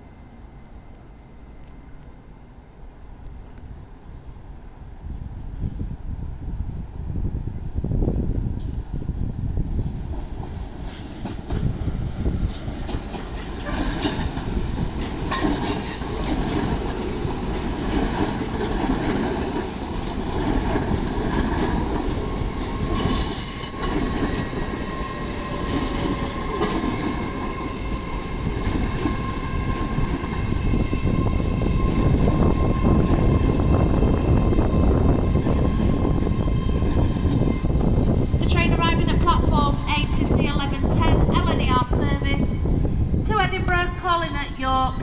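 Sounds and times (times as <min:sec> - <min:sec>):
train wheels rumbling on rails: 0:02.9 - 0:45.0
high-pitched wheel squeals: 0:22.9 - 0:24.5.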